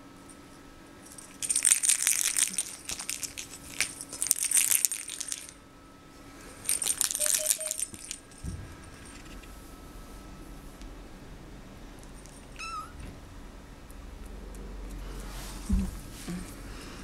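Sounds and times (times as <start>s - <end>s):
small metallic jingling and rattling: 1.0s - 5.6s, 6.6s - 9.5s.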